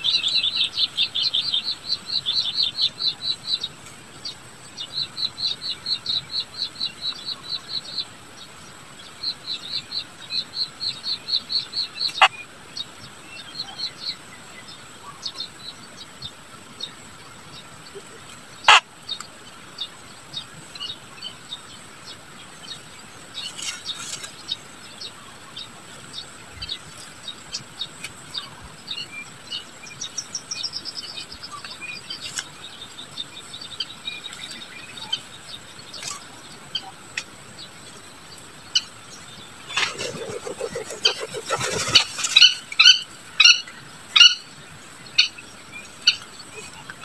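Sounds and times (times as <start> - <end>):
birds chirping: 0.0 - 47.0
wings rustling flutter: 39.7 - 42.5
loud harsh bird calls: 39.7 - 43.6.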